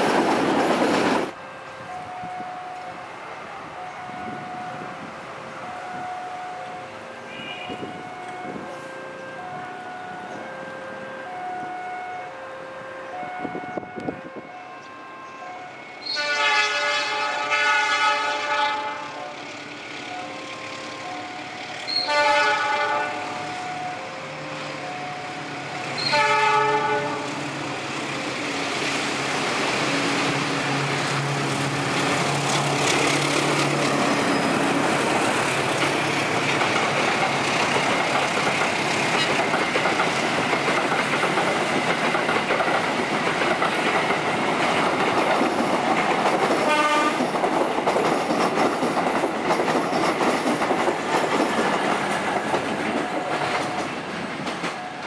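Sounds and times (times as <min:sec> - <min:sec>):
train wheels clattering on rails: 0:00.0 - 0:01.4, 0:28.7 - 0:55.0
locomotive horn: 0:05.5 - 0:19.5, 0:21.0 - 0:27.4, 0:46.6 - 0:47.4
locomotive engine drone: 0:18.9 - 0:26.1.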